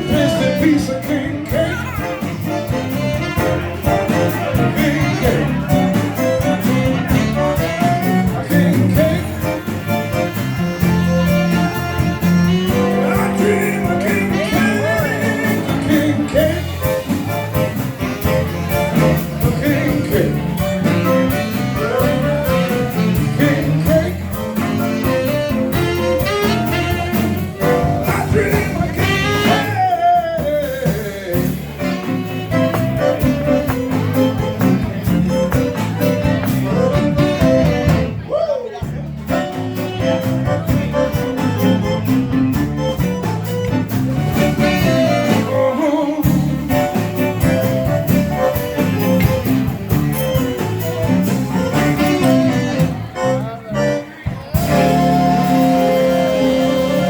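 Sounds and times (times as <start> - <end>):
person singing: 0.0 - 7.2, 7.8 - 10.1, 12.2 - 17.7, 18.7 - 25.2, 26.9 - 32.4, 44.8 - 47.8, 54.6 - 57.0
zydeco band playing: 0.0 - 57.0.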